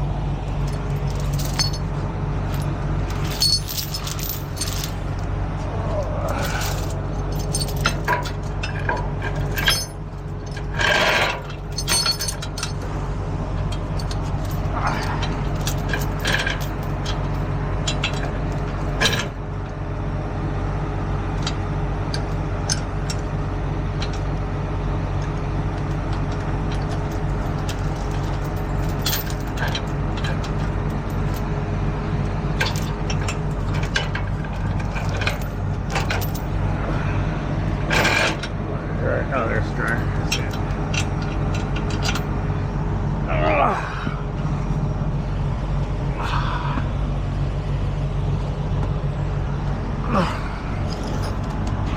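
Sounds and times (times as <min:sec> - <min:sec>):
truck diesel engine idling: 0:00.0 - 0:51.9
metal clinks of tow gear: 0:00.6 - 0:05.3, 0:06.0 - 0:12.9, 0:13.5 - 0:19.4, 0:21.4 - 0:23.3, 0:25.2 - 0:31.5, 0:32.6 - 0:36.6, 0:37.8 - 0:38.6, 0:39.5 - 0:42.4, 0:50.7 - 0:51.9.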